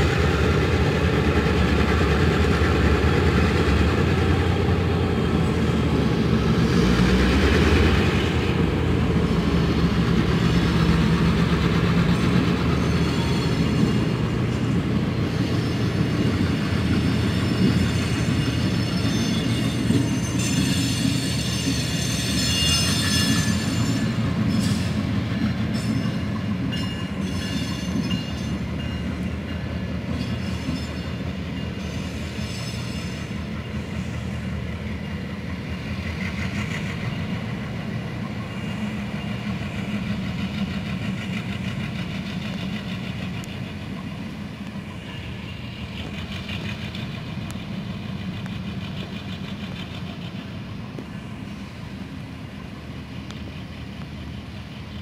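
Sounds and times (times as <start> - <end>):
train wheels rumbling on rail: 0.0 - 55.0
high-pitched wheel squeal: 12.7 - 14.3, 17.0 - 25.0, 31.8 - 34.4.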